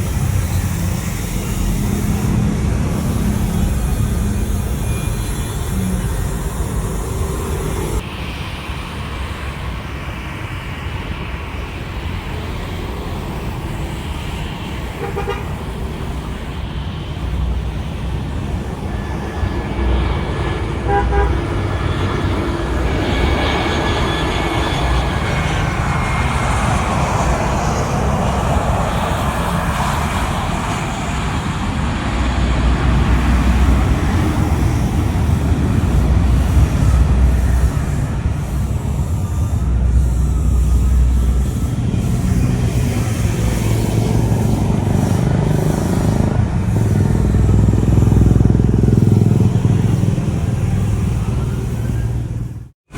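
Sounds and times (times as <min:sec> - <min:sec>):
traffic and engine rumble: 0:00.0 - 0:52.9
car horn toots: 0:15.0 - 0:15.6, 0:20.8 - 0:21.5.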